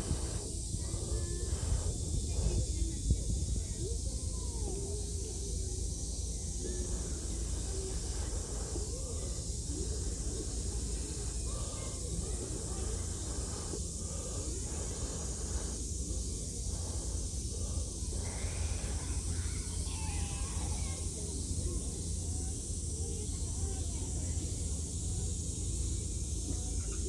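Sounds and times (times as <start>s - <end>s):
wind rumbling on microphone: 0.0s - 5.0s
seaside hiss: 0.0s - 26.7s.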